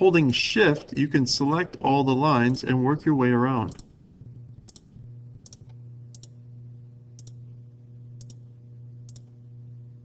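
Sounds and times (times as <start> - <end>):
steady low hum: 0.0 - 10.0
computer mouse clicking: 3.7 - 3.9, 4.6 - 6.4, 7.2 - 7.4, 8.2 - 8.4, 9.0 - 9.3.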